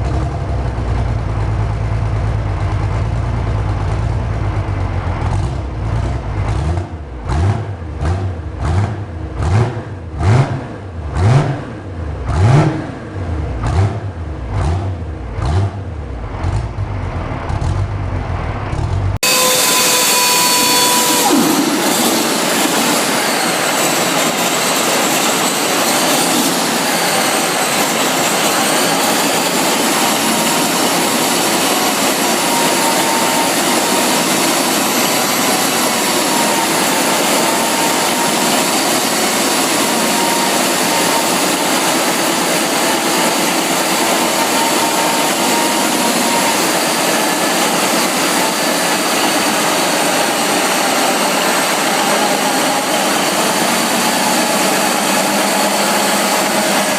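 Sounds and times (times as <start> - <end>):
large engine running: 0.0 - 56.9
high whine rising in pitch: 19.2 - 56.9.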